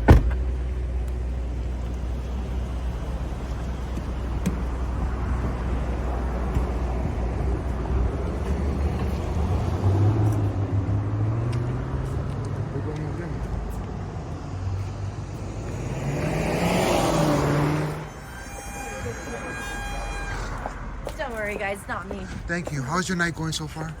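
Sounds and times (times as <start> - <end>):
low rumble of vehicle engines: 0.0 - 24.0.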